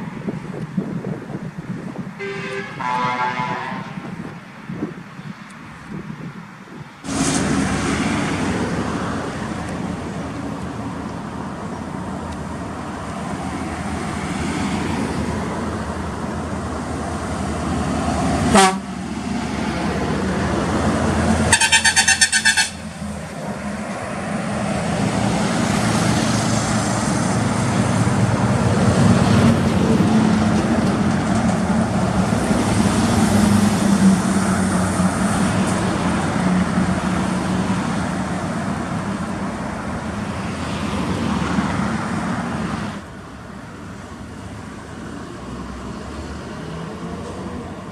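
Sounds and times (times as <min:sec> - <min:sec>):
diesel trucks passing: 0:00.0 - 0:47.9
truck horn blowing: 0:02.2 - 0:04.1, 0:18.5 - 0:19.0, 0:21.5 - 0:23.0.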